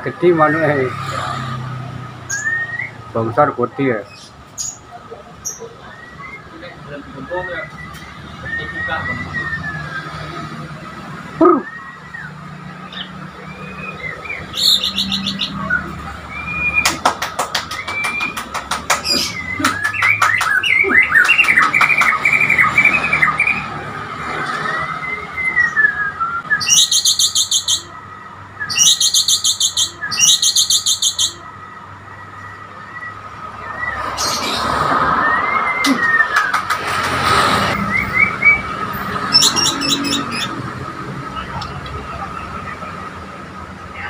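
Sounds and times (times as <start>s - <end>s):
bird singing whistled phrases: 2.3s - 3.0s, 5.5s - 10.4s, 11.4s - 16.9s, 17.7s - 18.4s, 24.5s - 27.9s, 28.6s - 31.4s, 37.8s - 40.6s.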